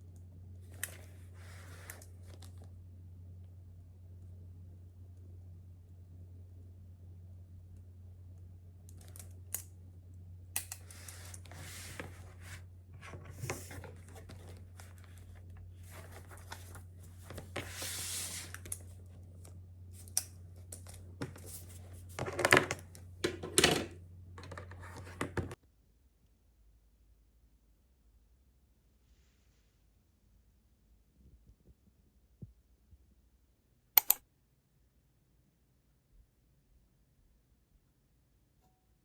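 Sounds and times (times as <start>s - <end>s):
rustling and crinkling: 10.8s - 23.4s.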